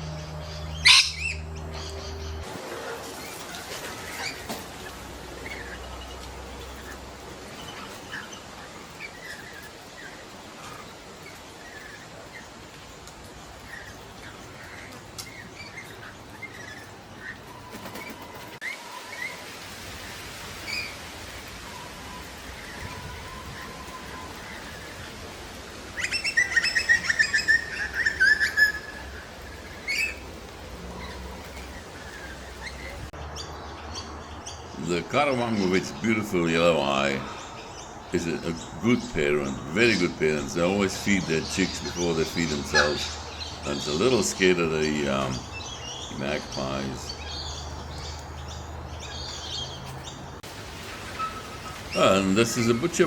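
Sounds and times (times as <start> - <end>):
bird chirping: 0.0 - 2.5, 26.0 - 50.4
bird chirps: 0.0 - 2.5, 26.0 - 30.3
steady background hiss: 0.0 - 53.0.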